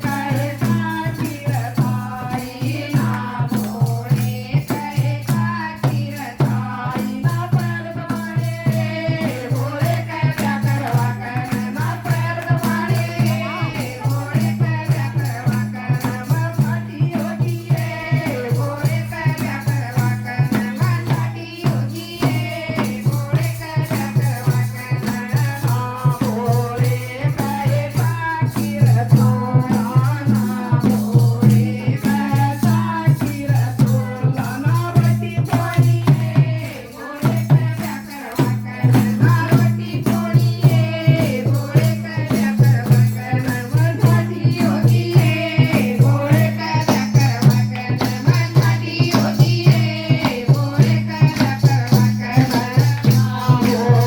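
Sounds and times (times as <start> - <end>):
fast drum beat: 0.0 - 54.0
woman singing devotional song: 0.0 - 54.0
jingling rattle: 40.2 - 54.0.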